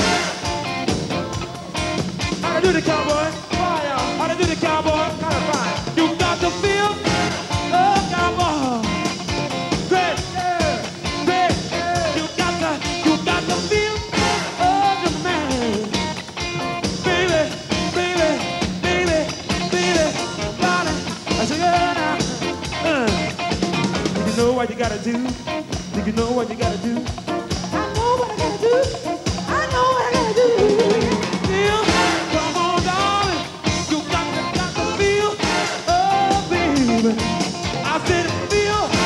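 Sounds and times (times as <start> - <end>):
rock band playing funk-rock: 0.0 - 39.0
steady drum beat: 0.0 - 39.0
pitch-bending lead line: 22.0 - 39.0.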